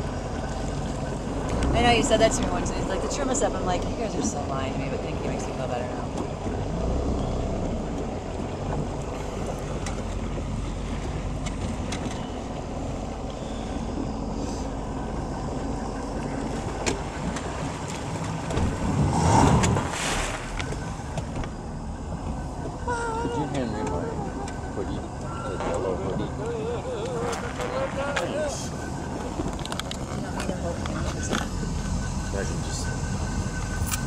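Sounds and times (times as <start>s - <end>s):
boat engine running: 0.0s - 34.0s
water rushing: 16.2s - 32.1s
wind noise: 16.3s - 31.9s.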